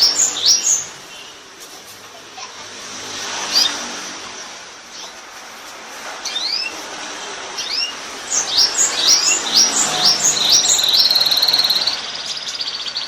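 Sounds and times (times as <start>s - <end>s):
canary singing: 0.0s - 1.5s, 6.2s - 6.8s, 7.6s - 13.0s.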